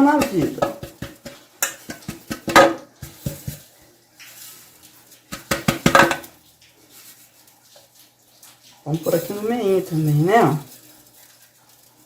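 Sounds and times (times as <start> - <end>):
cake pan and utensils knocking: 0.0 - 3.7, 5.3 - 6.3.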